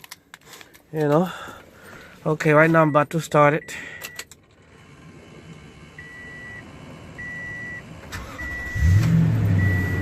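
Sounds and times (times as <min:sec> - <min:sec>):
car engine starting and running: 0:01.1 - 0:10.0
dashboard warning chime beeping: 0:02.5 - 0:04.3, 0:05.9 - 0:10.0.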